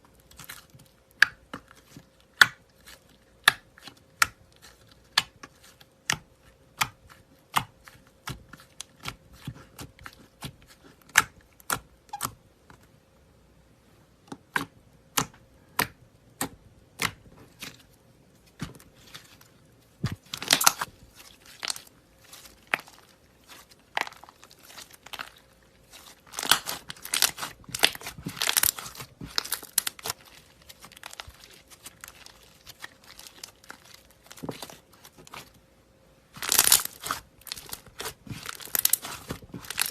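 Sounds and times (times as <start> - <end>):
slime crackling: 16.4 - 35.6, 36.3 - 39.9
slime clicking and popping: 26.3 - 30.3.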